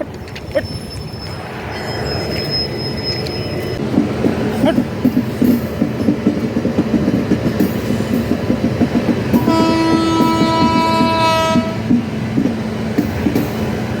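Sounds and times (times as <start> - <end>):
train wheels clattering: 3.1 - 14.0
locomotive horn blast: 9.4 - 11.9.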